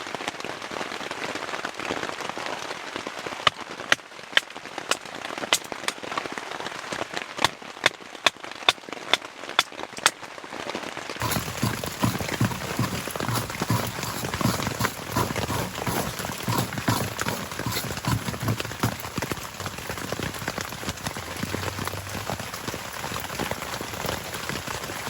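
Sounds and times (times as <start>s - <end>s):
rain falling: 17.6s - 25.0s.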